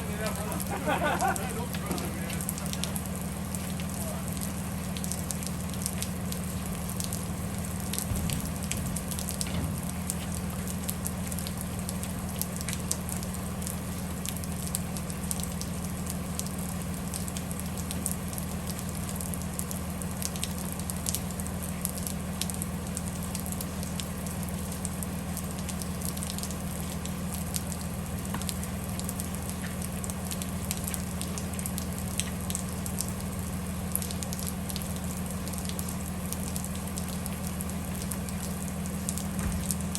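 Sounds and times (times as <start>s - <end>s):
bus cabin hum: 0.0s - 3.2s
rain ticking on windows: 0.0s - 39.9s.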